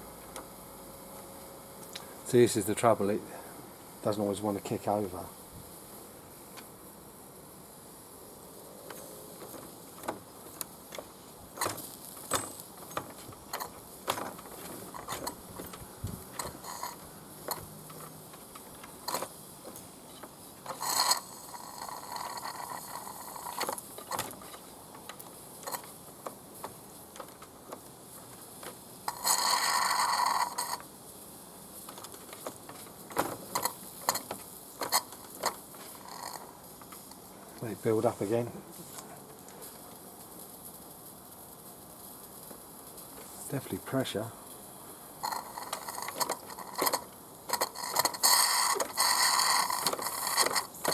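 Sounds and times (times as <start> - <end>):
small metal mechanism clicking: 10.0 - 30.9, 31.8 - 37.2, 45.2 - 50.9.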